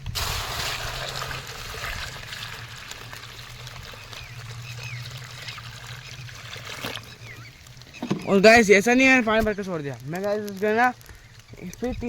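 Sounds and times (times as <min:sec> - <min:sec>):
water pouring into a vessel: 0:00.0 - 0:09.0
bird chirps: 0:03.3 - 0:12.0.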